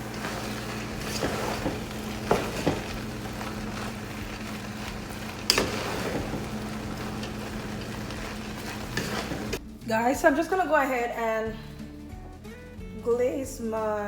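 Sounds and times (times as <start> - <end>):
food hissing in a pot: 0.0 - 9.6.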